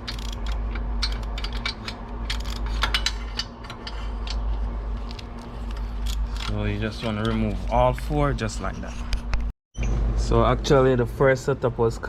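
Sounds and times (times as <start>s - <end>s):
hand ratchet clicking: 0.0s - 4.5s.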